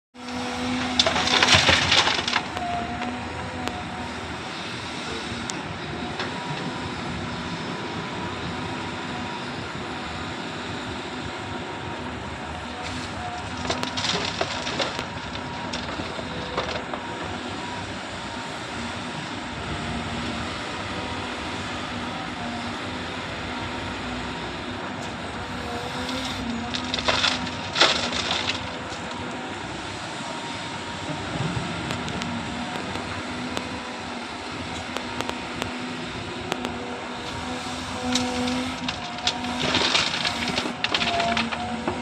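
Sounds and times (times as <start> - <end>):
excavator diesel engine humming: 0.2 - 42.0
bucket scraping stones: 25.6 - 29.2, 37.7 - 41.8.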